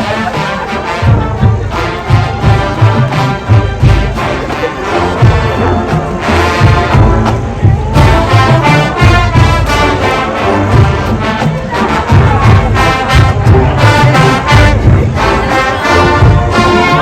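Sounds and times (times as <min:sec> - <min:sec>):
brass playing: 0:00.0 - 0:17.0
pounding low drums: 0:00.0 - 0:17.0.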